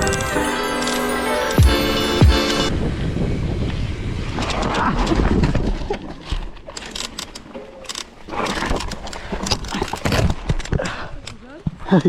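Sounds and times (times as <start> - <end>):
camera buffeting and rattling: 6.7 - 10.8.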